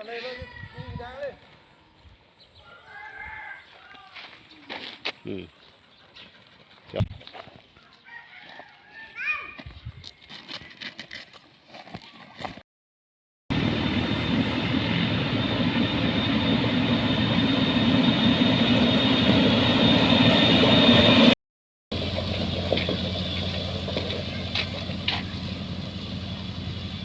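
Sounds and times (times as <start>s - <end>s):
heavy machinery engine running: 13.5s - 27.0s
engine idling quietly: 22.0s - 27.0s.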